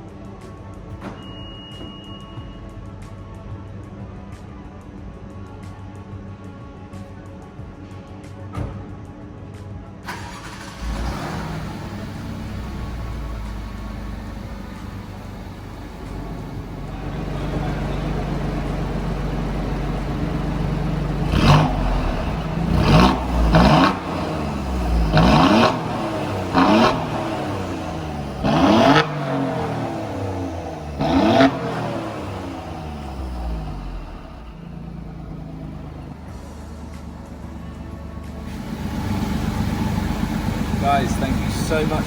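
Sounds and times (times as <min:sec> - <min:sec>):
car engine running: 0:10.1 - 0:42.0
engine revving blips: 0:10.1 - 0:42.0.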